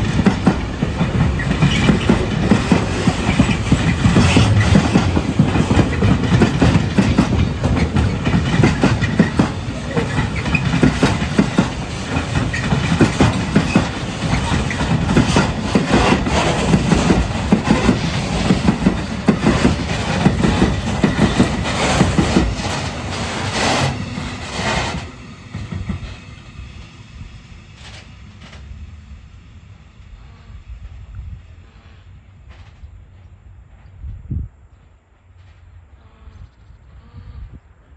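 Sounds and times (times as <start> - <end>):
freight train wheels clacking: 0.0 - 29.4.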